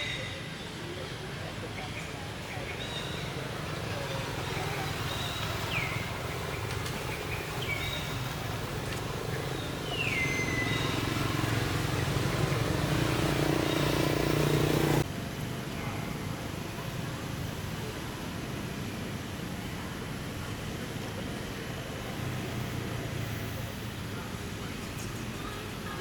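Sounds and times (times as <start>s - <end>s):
steady motor hum: 3.4s - 18.2s.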